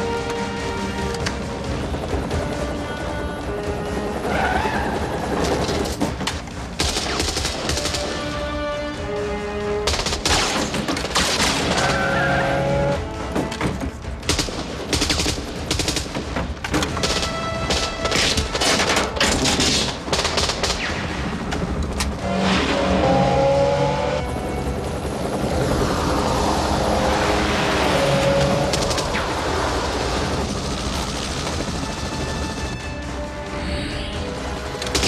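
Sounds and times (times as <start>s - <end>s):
dramatic score music: 0.0s - 35.0s
vehicle engine: 21.4s - 35.0s
dense rushing noise: 24.2s - 35.0s.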